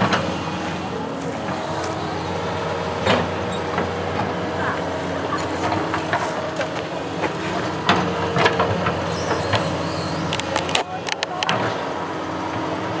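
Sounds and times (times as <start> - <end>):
construction machine engine running: 0.0 - 13.0
sharp metallic clicks and knocks: 10.3 - 11.6.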